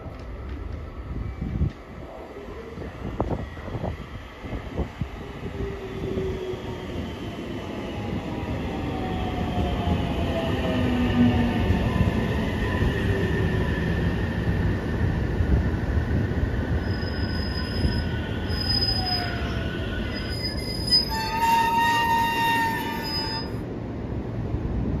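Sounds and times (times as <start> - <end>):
brake and wheel squeal: 16.8 - 23.6.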